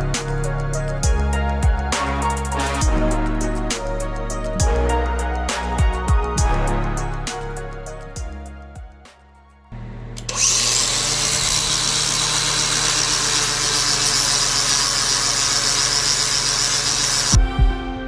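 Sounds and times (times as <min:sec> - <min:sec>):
quiet music: 0:09.7 - 0:18.0
power tool humming: 0:09.8 - 0:17.6.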